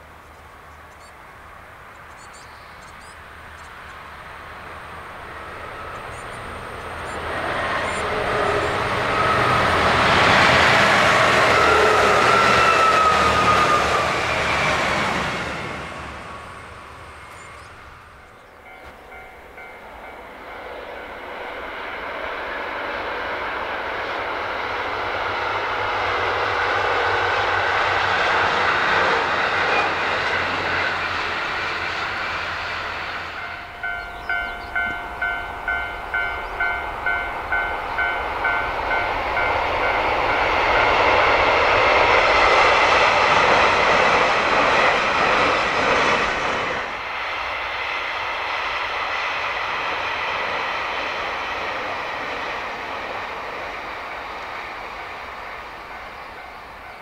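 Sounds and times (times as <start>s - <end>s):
train approaching: 0.0s - 57.0s
train passing: 0.0s - 57.0s
railway crossing bell ringing: 17.2s - 22.1s, 33.0s - 41.5s, 55.6s - 57.0s.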